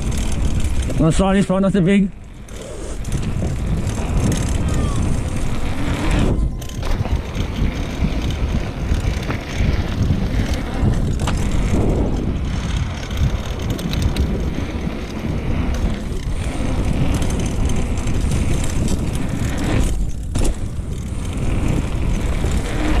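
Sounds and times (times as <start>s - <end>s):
bike tyre rumble and rattling: 0.0s - 23.0s
wind buffeting microphone: 0.0s - 23.0s.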